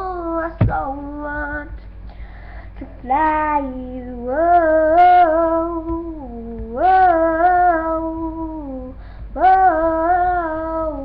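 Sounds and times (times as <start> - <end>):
girl singing long notes: 0.0 - 1.8, 2.5 - 11.0.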